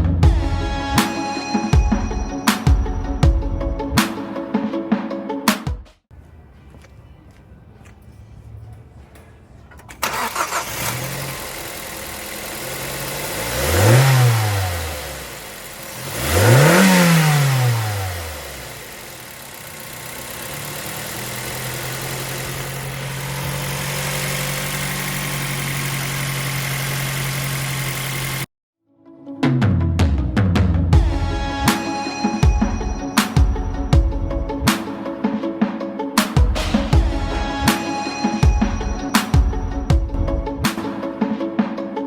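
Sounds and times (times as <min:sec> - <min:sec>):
car engine starting and idling: 0:07.9 - 0:28.5
engine revving: 0:10.0 - 0:28.5.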